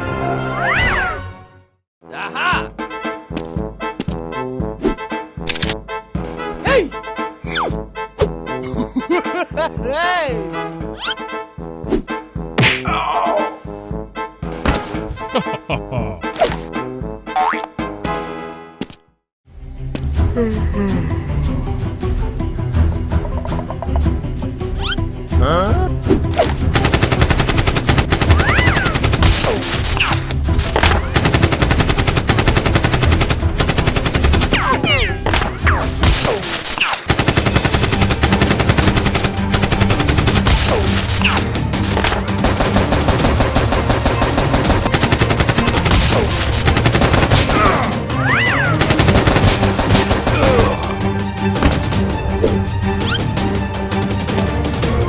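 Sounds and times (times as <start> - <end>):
background music: 0.0 - 55.0
automatic gunfire: 26.8 - 29.6, 30.9 - 34.6, 37.1 - 41.4, 42.2 - 47.9, 48.8 - 50.8.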